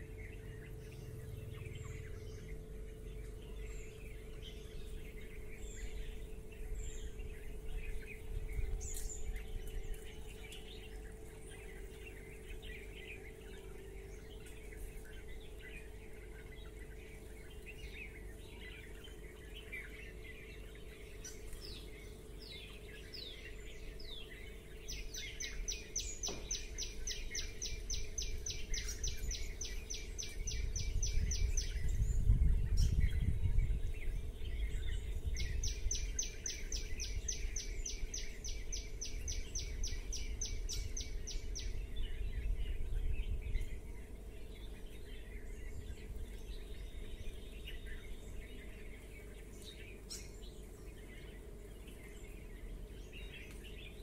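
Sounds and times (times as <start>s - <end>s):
small birds chirping: 0.0s - 54.0s
low rumble: 26.5s - 36.2s.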